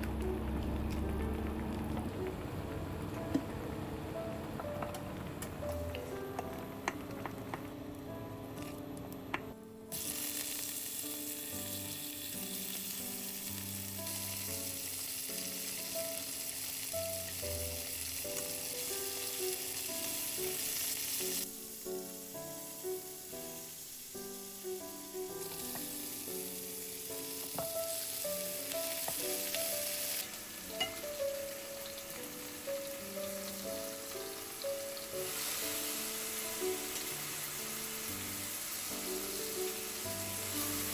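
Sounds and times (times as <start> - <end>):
soft background music: 0.0 - 40.9
food sizzling in a frying pan: 9.9 - 40.9.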